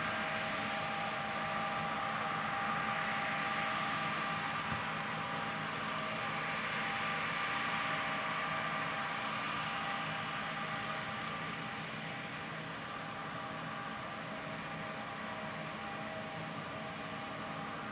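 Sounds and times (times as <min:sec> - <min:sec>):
combine harvester hum and hiss: 0:00.0 - 0:17.9.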